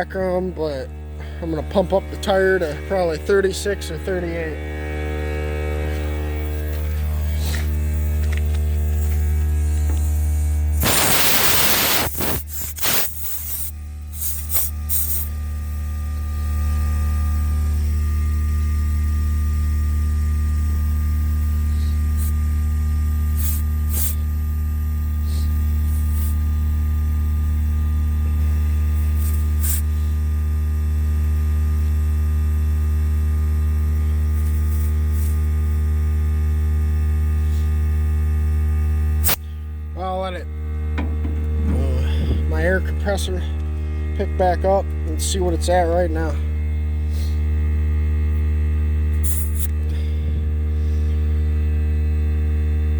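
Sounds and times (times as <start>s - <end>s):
air compressor motor humming: 0.0s - 52.9s
air hissing into tire: 9.8s - 15.3s, 23.4s - 24.2s, 29.2s - 30.2s, 39.2s - 39.5s, 49.2s - 50.1s.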